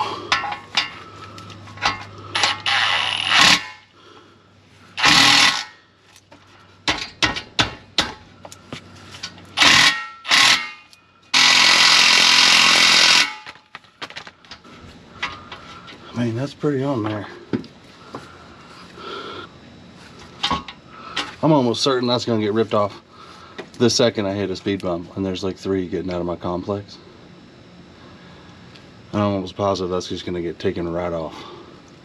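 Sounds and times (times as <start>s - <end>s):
impact wrench hammering: 0.3s - 1.0s, 1.8s - 3.9s, 5.0s - 5.8s, 6.8s - 8.2s, 9.6s - 13.6s.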